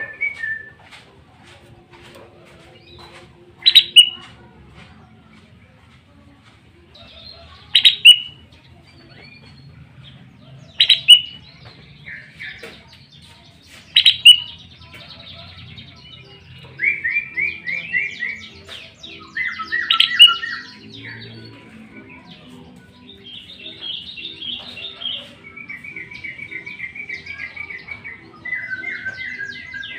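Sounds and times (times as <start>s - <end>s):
bird calling loudly: 3.6s - 4.2s, 7.7s - 8.3s, 10.8s - 11.4s, 13.9s - 14.6s, 19.4s - 20.7s.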